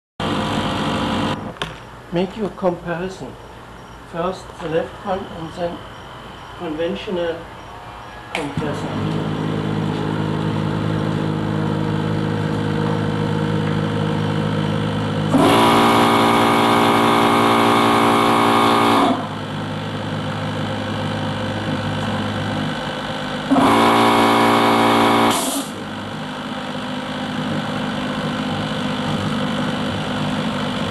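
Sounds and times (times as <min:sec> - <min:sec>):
harsh piston compressor running: 0:00.2 - 0:01.4, 0:03.6 - 0:30.9
air compressor humming: 0:03.3 - 0:30.9.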